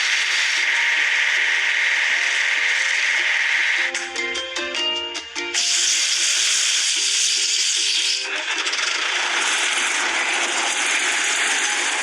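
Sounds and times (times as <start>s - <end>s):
faint music notes: 0.0s - 9.4s
loud steady hiss: 5.6s - 8.1s.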